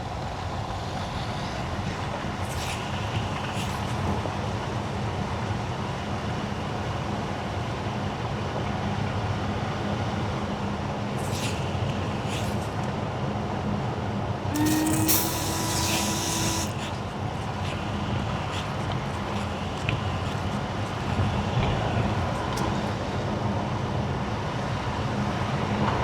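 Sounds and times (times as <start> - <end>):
short hissing sweeps: 11.2 - 12.9, 14.5 - 23.0
tyre hiss on wet road: 14.5 - 18.8.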